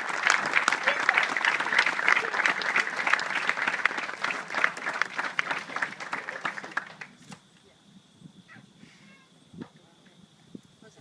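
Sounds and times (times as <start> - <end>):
audience clapping: 0.0 - 7.2.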